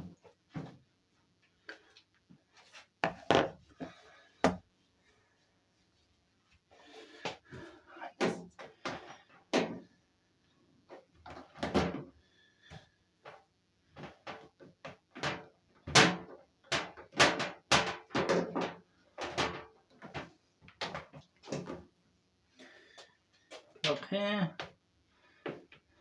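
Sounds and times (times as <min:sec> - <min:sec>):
knocks and clunks of washing machine: 0:15.2 - 0:19.7.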